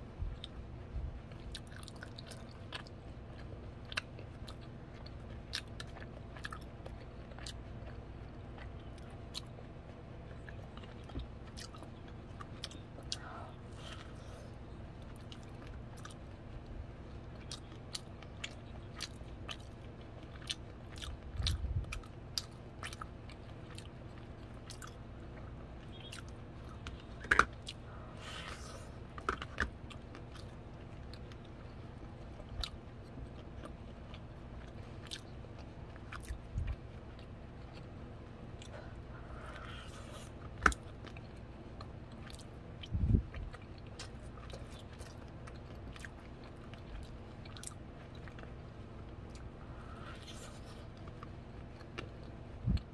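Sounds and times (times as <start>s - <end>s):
corn on the cob crunching: 25.9s - 31.4s.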